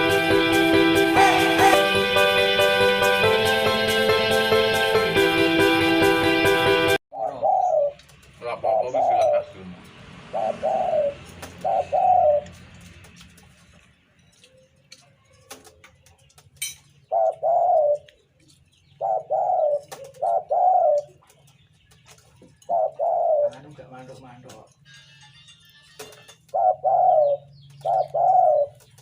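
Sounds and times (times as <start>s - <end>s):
dove cooing: 1.1s - 1.9s, 7.1s - 9.6s, 10.2s - 12.6s, 17.0s - 18.2s, 18.9s - 21.3s, 22.5s - 24.1s, 26.0s - 29.0s.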